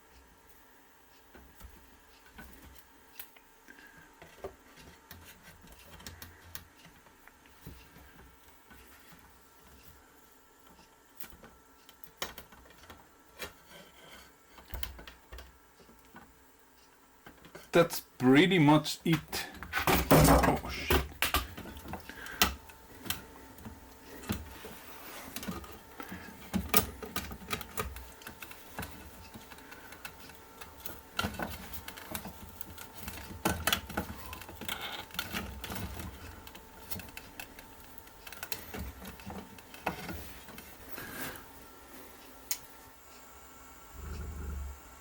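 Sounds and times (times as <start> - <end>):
wooden slats clicking and knocking: 19.6 - 24.6.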